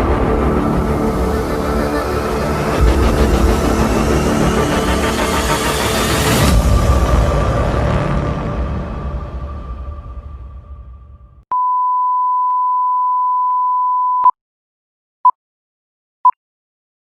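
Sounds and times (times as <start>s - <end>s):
background music: 0.0s - 11.4s
electronic beep tone: 11.5s - 14.4s.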